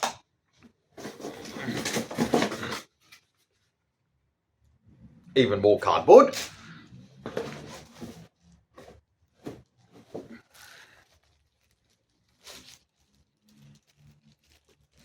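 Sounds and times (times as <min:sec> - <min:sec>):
cardboard scraping and rustling: 0:00.9 - 0:03.2, 0:07.1 - 0:15.0.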